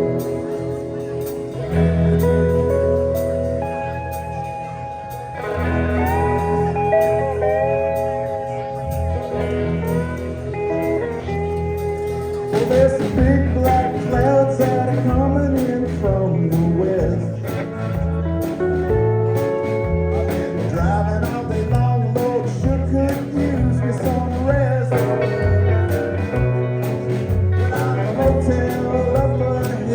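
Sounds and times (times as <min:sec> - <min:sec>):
bass: 0:00.0 - 0:29.9
bending guitar lines: 0:00.0 - 0:29.9
steady drum beat: 0:05.2 - 0:29.9.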